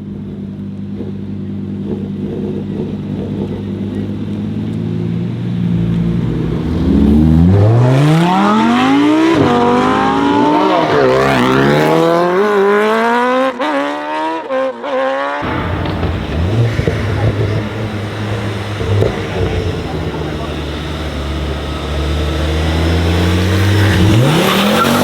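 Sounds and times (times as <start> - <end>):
car engine accelerating hard: 0.8 - 25.0
exhaust cracks: 15.4 - 25.0.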